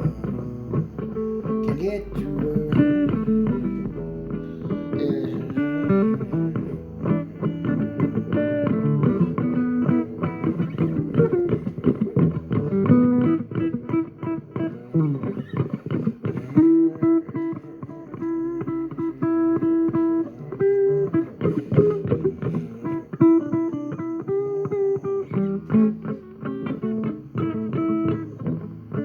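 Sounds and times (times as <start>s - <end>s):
bass line: 0.0s - 11.6s
plucked guitar: 0.0s - 29.0s.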